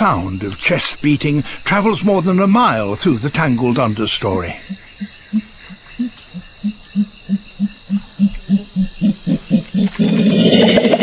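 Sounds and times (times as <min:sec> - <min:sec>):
gorilla hooting: 0:04.5 - 0:11.0
gorilla chest beating: 0:04.6 - 0:11.0.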